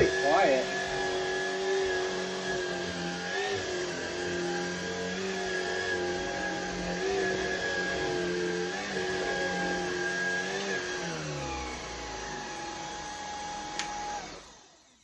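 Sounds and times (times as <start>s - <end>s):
vacuum cleaner running: 0.0s - 15.0s
vacuum switch click: 13.7s - 14.0s.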